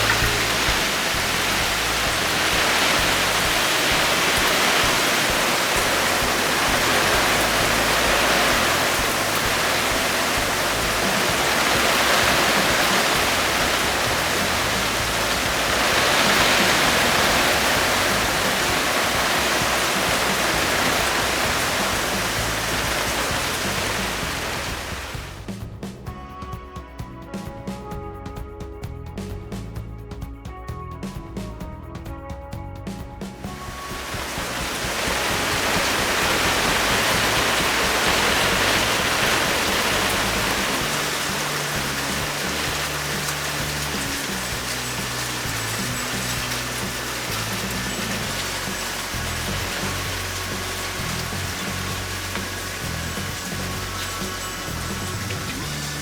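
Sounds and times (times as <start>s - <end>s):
heavy rain pouring: 0.0s - 25.8s, 33.2s - 56.0s
music: 0.0s - 56.0s.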